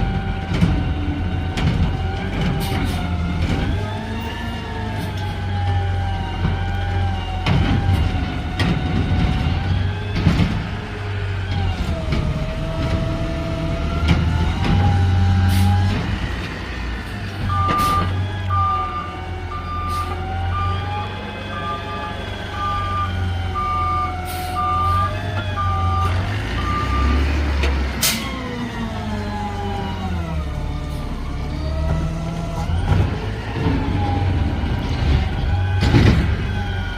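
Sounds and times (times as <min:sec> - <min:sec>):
reversing alarm beeps: 0:17.4 - 0:27.2.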